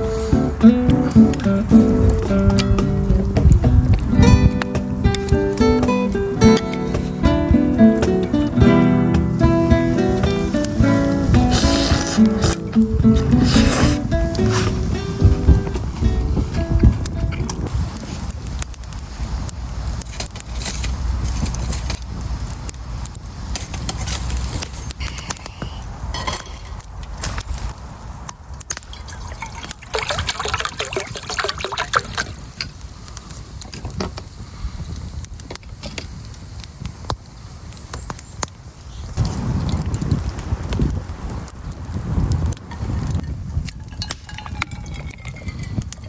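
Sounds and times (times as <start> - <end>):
fire crackling: 0.0 - 46.0
liquid sloshing in a pot: 28.9 - 32.4.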